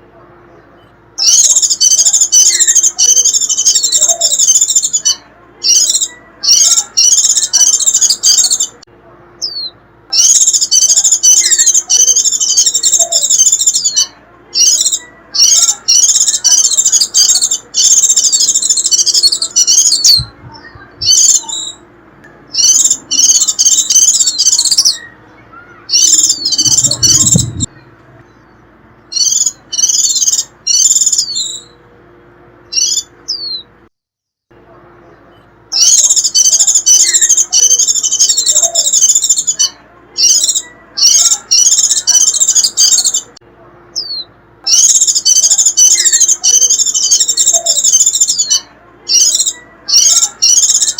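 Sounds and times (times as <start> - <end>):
bird twittering song: 0.5 - 8.8, 9.4 - 31.8, 32.6 - 33.7, 35.1 - 43.3, 43.9 - 50.9
short rising bird notes: 22.5 - 31.8.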